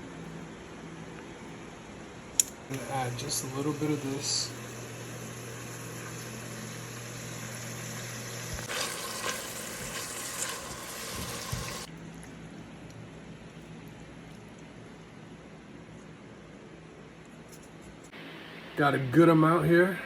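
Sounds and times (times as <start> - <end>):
oil and garlic sizzling: 2.8 - 11.9.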